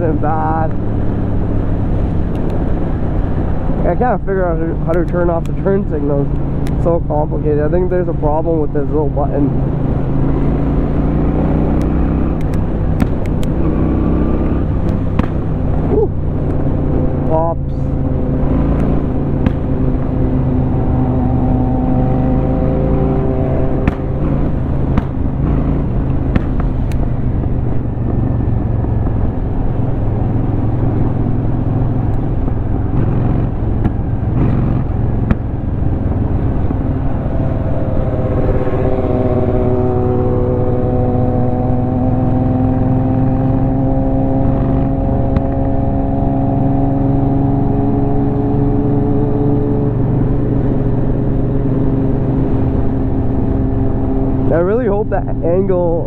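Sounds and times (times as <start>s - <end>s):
wind rush: 0.0s - 4.8s, 9.0s - 55.4s
motorcycle engine running: 0.0s - 56.0s
exhaust pops: 11.8s - 13.7s, 18.7s - 20.2s, 23.7s - 37.4s, 44.5s - 45.8s.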